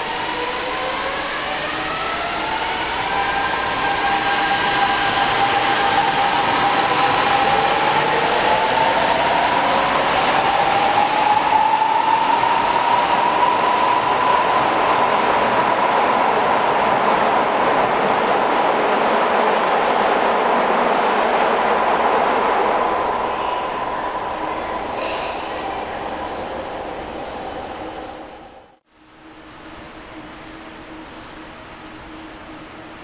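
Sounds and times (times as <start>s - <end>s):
train rumble: 1.3s - 28.8s.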